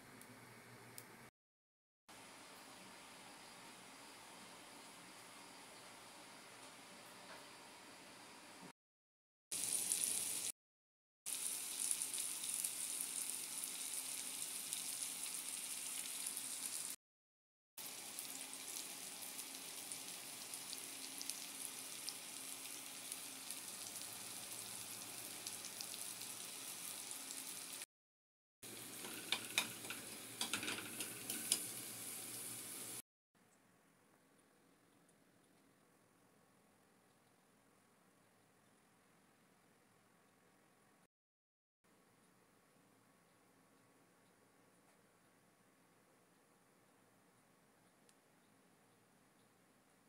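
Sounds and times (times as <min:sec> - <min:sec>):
eggs and tomatoes frying in oil: 0:00.0 - 0:01.3, 0:09.5 - 0:10.6, 0:11.3 - 0:17.0, 0:17.8 - 0:27.9, 0:28.6 - 0:33.0
oil popping and crackling: 0:28.7 - 0:31.9.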